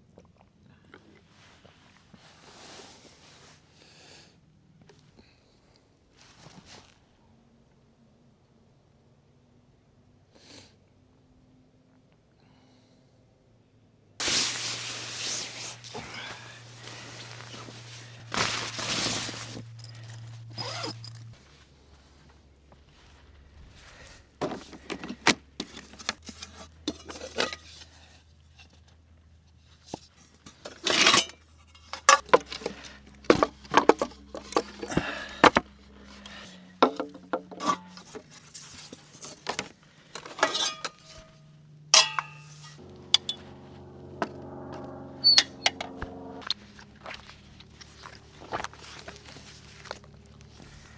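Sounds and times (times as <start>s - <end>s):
metal cookware clinking and scraping: 30.7s - 32.7s, 36.9s - 38.2s, 40.2s - 41.4s, 42.0s - 43.4s.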